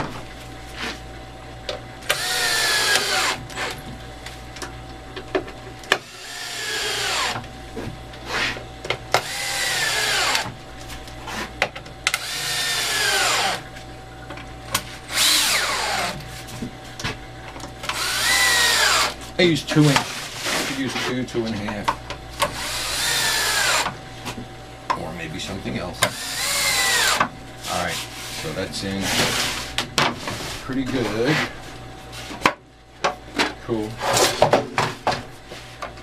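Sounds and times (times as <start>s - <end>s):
power drill driving screws: 2.1s - 3.8s, 6.0s - 7.4s, 9.2s - 10.5s, 12.1s - 13.6s, 15.1s - 16.2s, 17.9s - 19.2s, 22.6s - 23.9s, 26.1s - 27.2s.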